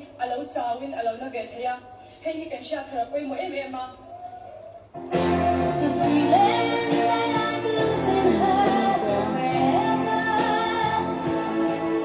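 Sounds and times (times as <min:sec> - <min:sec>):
sustained instrumental backing: 0:04.9 - 0:12.0
woman singing: 0:05.5 - 0:12.0.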